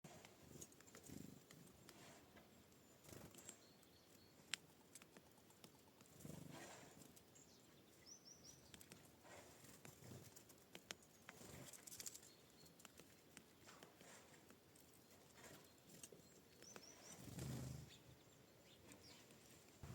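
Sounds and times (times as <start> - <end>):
quiet outdoor ambience: 0.0 - 19.9
bird calls: 10.9 - 19.9.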